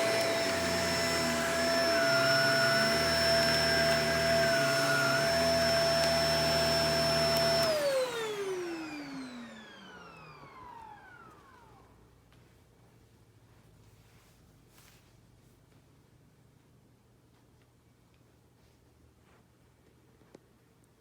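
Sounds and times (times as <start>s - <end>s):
motor winding down: 0.0s - 11.6s
vacuum cleaner whine: 0.0s - 12.2s.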